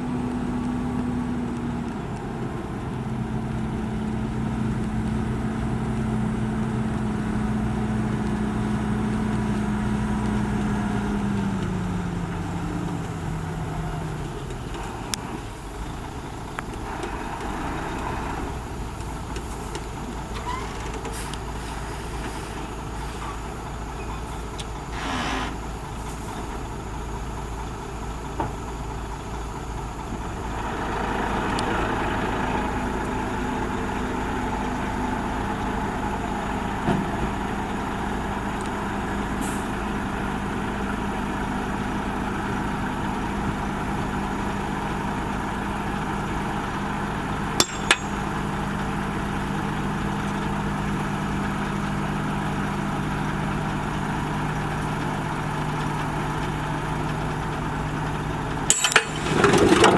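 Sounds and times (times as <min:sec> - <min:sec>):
heavy diesel engine running: 0:00.0 - 0:59.9
short hiss: 0:24.9 - 0:26.2.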